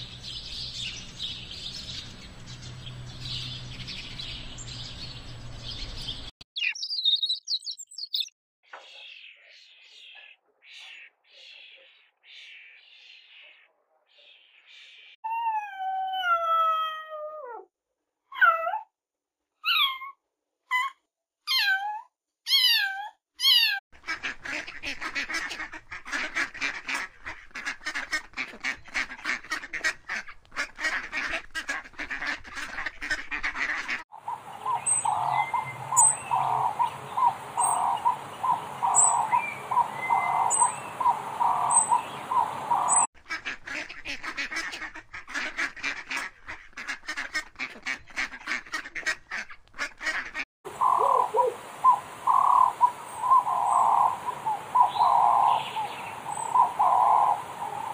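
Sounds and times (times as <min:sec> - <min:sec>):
flock of waterbirds calling: 0:24.0 - 0:49.1, 0:49.9 - 0:57.9.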